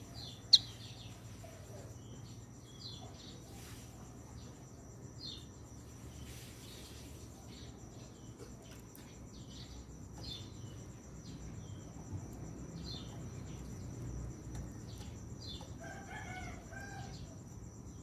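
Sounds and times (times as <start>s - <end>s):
bird whistling song: 0.0s - 0.9s
high insect trill: 0.0s - 18.0s.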